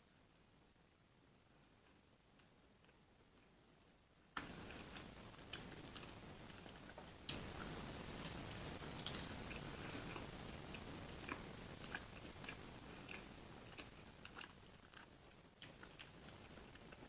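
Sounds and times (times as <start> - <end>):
person chewing food: 4.4 - 17.0.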